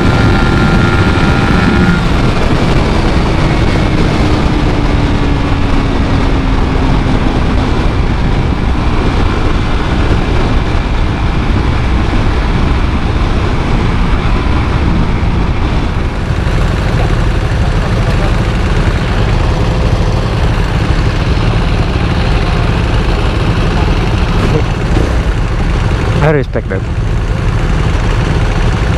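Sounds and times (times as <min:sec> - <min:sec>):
motorcycle engine: 0:00.0 - 0:28.9
steady low rumble: 0:00.0 - 0:28.9.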